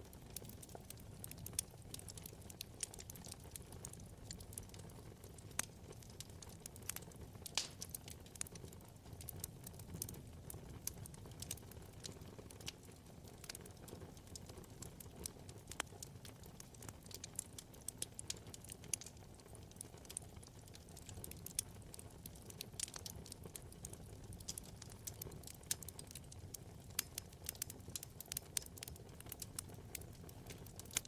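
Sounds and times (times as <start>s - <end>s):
low rumble of flames: 0.0s - 31.0s
wood fire crackling: 0.0s - 31.0s
sharp fire pops: 7.4s - 8.1s.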